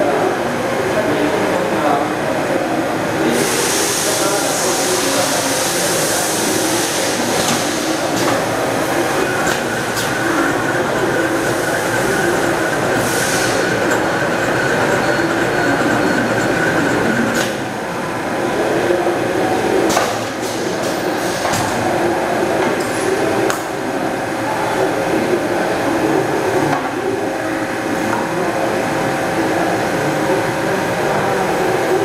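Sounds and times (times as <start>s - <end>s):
machinery mechanical din: 6.7s - 17.9s.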